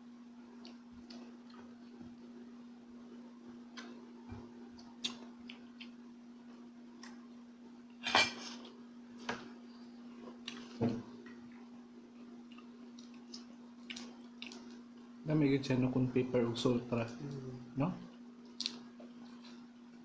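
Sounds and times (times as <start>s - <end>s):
steady low hum: 0.0s - 20.0s
cutlery and dishes clinking: 8.0s - 8.6s.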